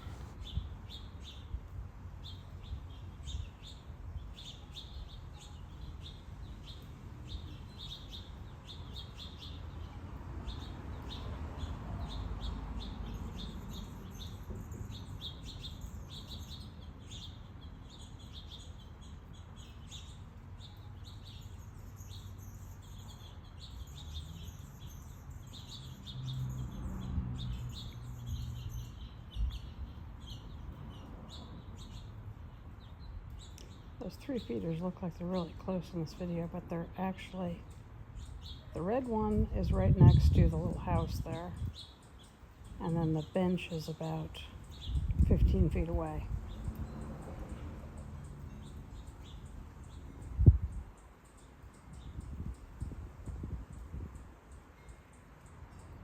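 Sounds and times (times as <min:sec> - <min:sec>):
songbirds chirping and twittering: 0:00.0 - 0:56.0
breeze rumble on microphone: 0:39.4 - 0:41.7.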